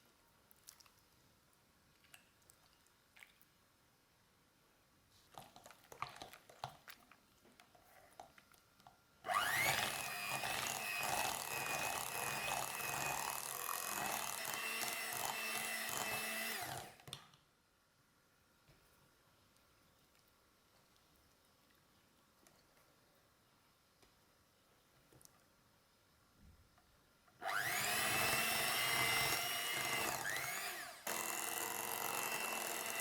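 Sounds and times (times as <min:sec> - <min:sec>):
kitchen appliance motor whine: 0:09.3 - 0:17.0, 0:27.4 - 0:33.0.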